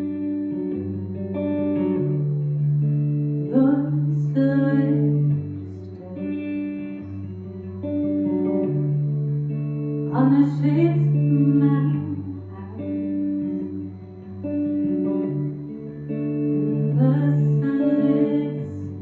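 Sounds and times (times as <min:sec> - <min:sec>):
live rock band music: 0:06.3 - 0:10.2.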